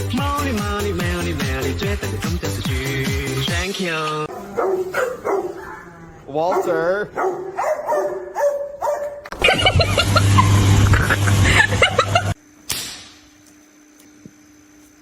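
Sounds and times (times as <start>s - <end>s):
dog barking: 4.3s - 9.8s.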